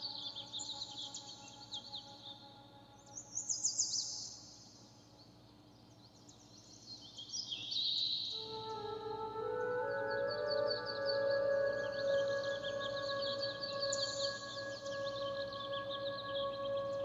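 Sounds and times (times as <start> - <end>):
small birds chirping: 0.0 - 17.0
soft sustained music tones: 0.0 - 17.0.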